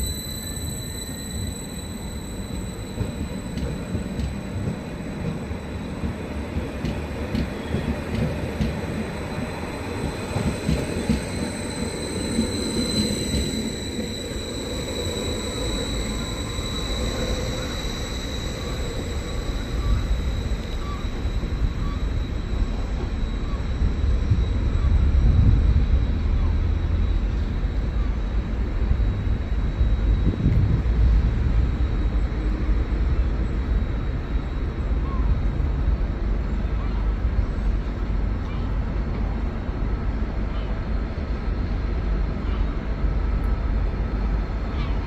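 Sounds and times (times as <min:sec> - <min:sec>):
high squeal or whine: 0:00.0 - 0:06.4, 0:08.8 - 0:36.8
train wheels rumbling on rails: 0:00.0 - 0:45.0.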